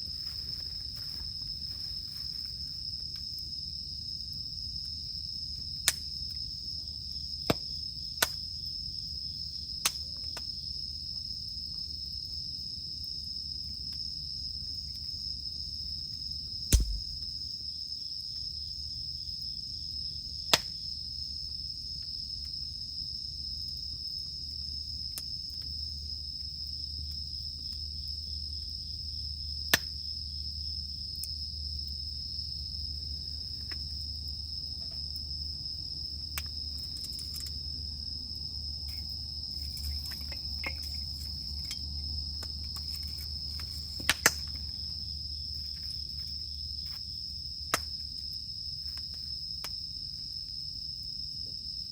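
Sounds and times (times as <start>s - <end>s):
cicadas droning: 0.0s - 51.9s
campfire popping and snapping: 5.8s - 6.4s, 7.4s - 8.5s, 9.8s - 10.6s, 16.7s - 17.4s, 36.0s - 37.8s, 38.8s - 45.1s, 47.7s - 49.8s.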